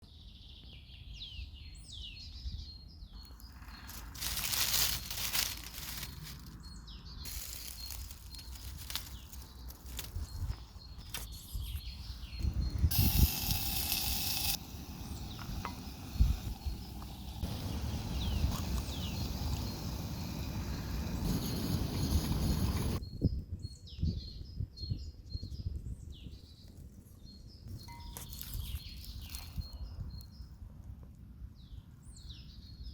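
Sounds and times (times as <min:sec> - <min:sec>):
cooking on camping stove: 0:03.1 - 0:23.0, 0:27.6 - 0:30.4.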